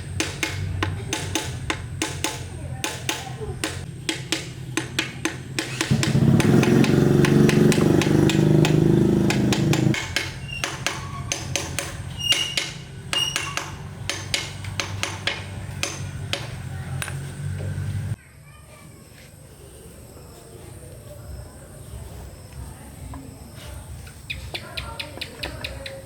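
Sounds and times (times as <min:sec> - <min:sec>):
tools tapping on metal: 0:00.1 - 0:17.3
motor running: 0:05.8 - 0:10.0.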